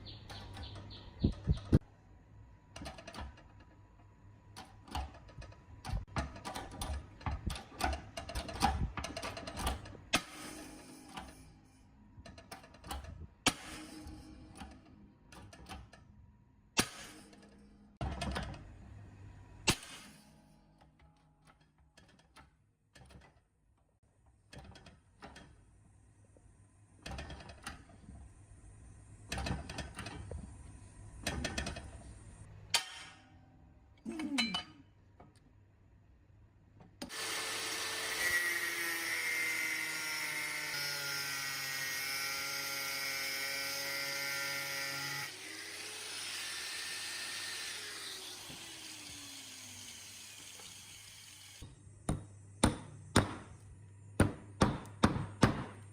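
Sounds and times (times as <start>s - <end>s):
clicks and knocks of parts: 2.7s - 11.5s, 12.2s - 16.1s, 19.7s - 25.7s, 29.3s - 30.5s, 31.2s - 32.1s
electric power tool whining: 37.0s - 51.6s.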